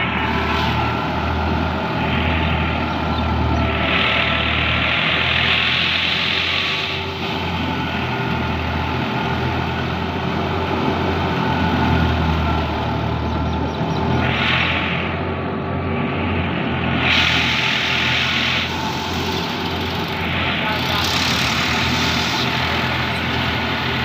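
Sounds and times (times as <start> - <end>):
heavy engine running steadily: 0.0 - 24.0
rushing hiss: 3.7 - 8.1, 16.8 - 24.0.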